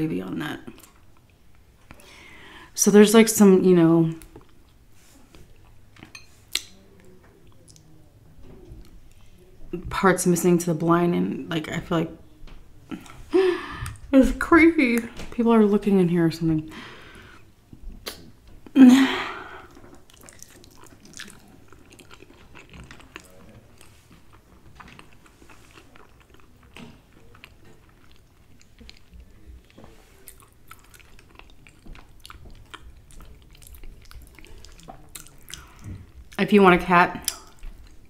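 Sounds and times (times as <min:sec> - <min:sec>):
person chewing: 0:19.4 - 0:36.4, 0:37.2 - 0:38.0.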